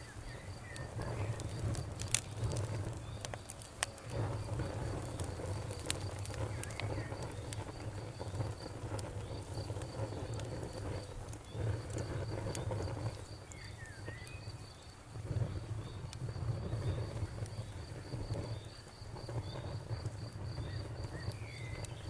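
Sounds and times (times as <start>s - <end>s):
campfire crackling and popping: 0.0s - 22.0s
insect chirping: 0.0s - 22.0s.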